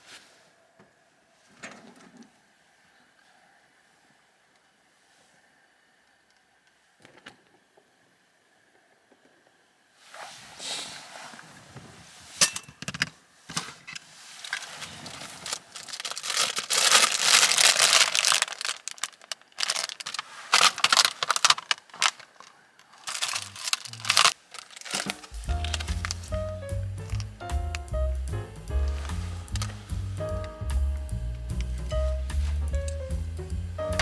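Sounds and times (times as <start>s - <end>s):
packaging crinkling: 14.4s - 26.4s.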